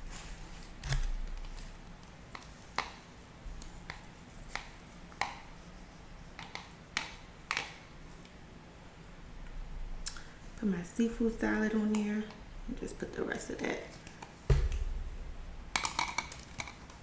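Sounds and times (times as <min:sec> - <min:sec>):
clicks and taps handling food: 0:00.8 - 0:03.0, 0:03.6 - 0:05.5, 0:06.4 - 0:08.4.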